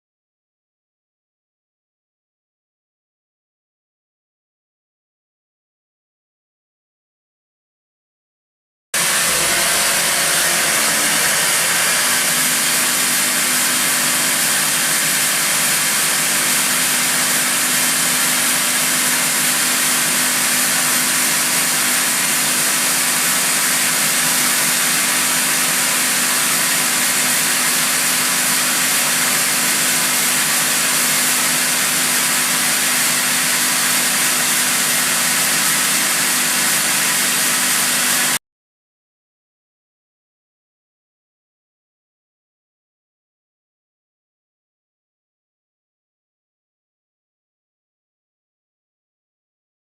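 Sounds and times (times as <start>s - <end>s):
machine hissing with low hum: 9.0s - 18.2s.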